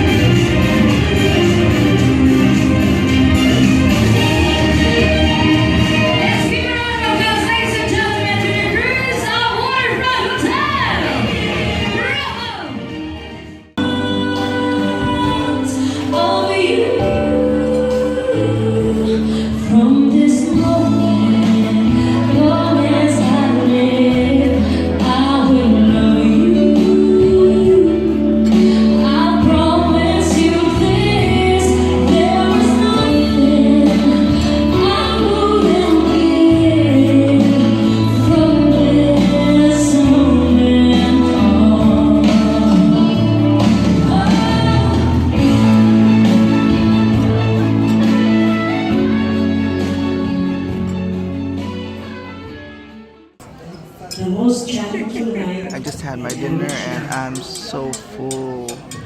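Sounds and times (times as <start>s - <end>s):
bass line: 0.0s - 9.4s
person singing: 56.2s - 59.0s.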